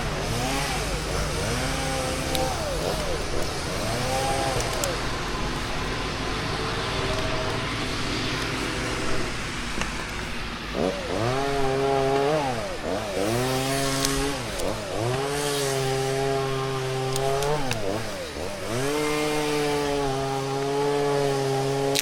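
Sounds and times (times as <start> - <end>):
chainsaw running and revving: 0.0 - 22.0.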